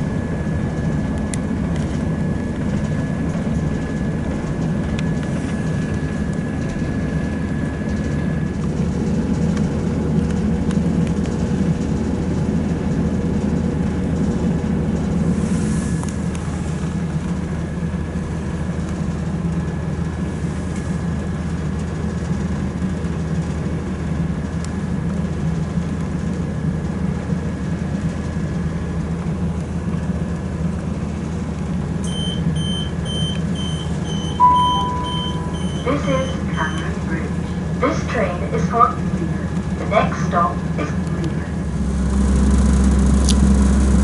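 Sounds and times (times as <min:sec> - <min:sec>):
train rumble inside carriage: 0:00.0 - 0:44.0
faint steady whine: 0:32.0 - 0:44.0
high-pitched beeps: 0:32.1 - 0:36.9.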